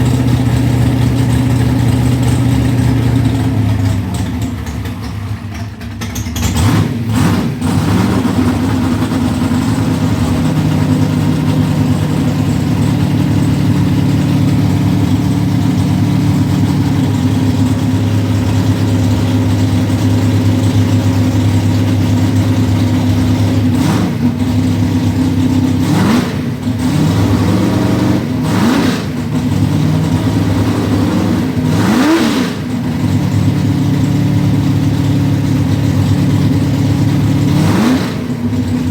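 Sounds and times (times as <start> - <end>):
car engine idling: 0.0 - 38.9
throttle blips revving engine: 6.4 - 38.8.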